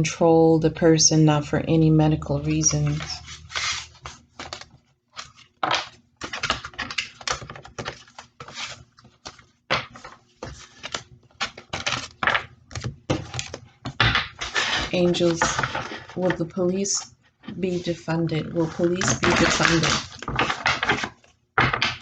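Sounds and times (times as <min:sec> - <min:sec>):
cards being shuffled: 0:02.7 - 0:13.7, 0:17.5 - 0:22.0.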